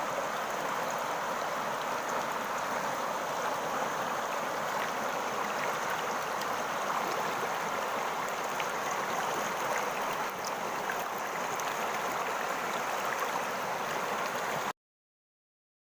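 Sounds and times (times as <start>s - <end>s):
flowing water rushing: 0.0s - 14.7s.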